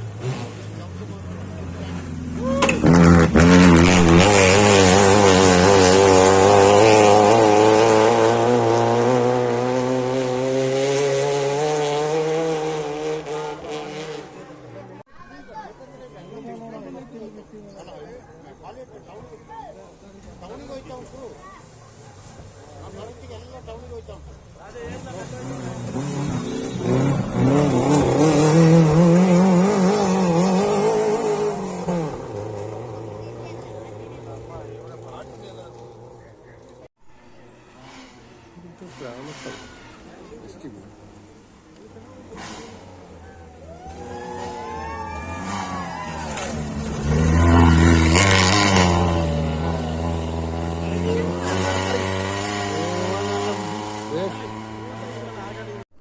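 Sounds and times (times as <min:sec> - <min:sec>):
rally car engine at high revs: 0:00.0 - 0:15.0, 0:24.7 - 0:36.2, 0:37.8 - 0:56.0.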